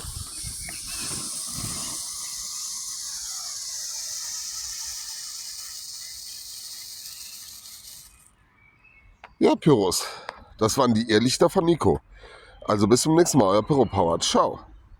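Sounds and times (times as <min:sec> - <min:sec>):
firework hissing: 0:00.0 - 0:08.3.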